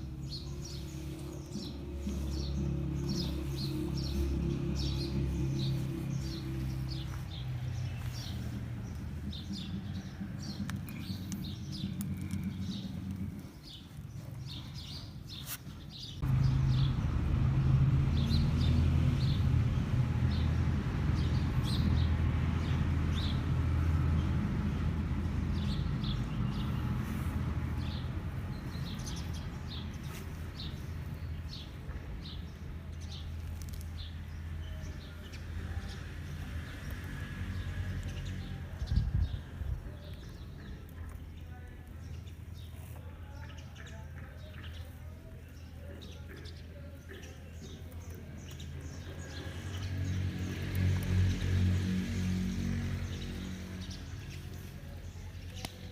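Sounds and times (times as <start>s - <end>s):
low motor hum: 0.0s - 14.2s, 16.2s - 33.4s
birds chirping: 0.0s - 55.9s.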